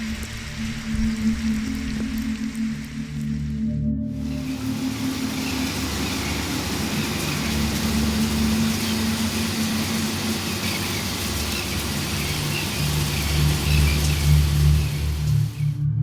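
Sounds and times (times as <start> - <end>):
vehicle engine idling: 4.2 - 15.8.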